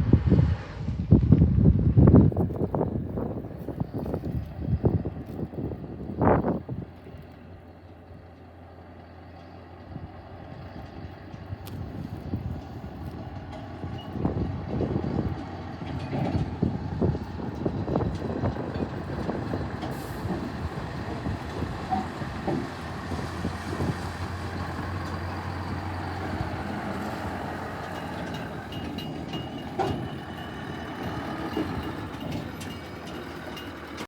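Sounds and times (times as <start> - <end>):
diesel truck engine running: 0.0 - 34.0
knocks and clunks: 21.5 - 23.2, 27.8 - 34.0.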